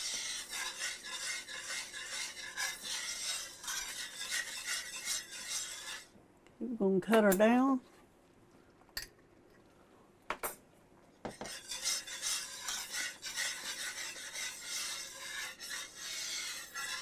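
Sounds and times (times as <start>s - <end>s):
whisk scraping a skillet: 0.0s - 6.2s, 11.2s - 17.0s.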